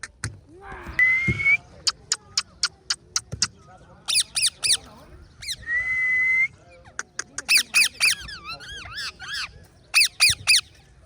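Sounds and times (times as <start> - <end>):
parrot squawks: 4.1 - 4.8, 7.5 - 10.7
parrot warbling calls: 7.5 - 10.6.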